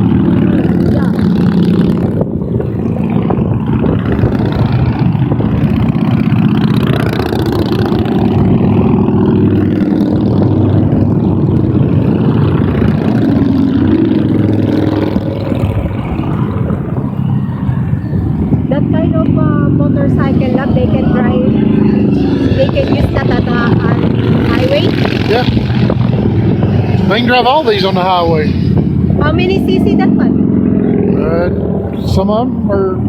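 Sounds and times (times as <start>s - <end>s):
motorcycles riding past: 0.0s - 33.0s.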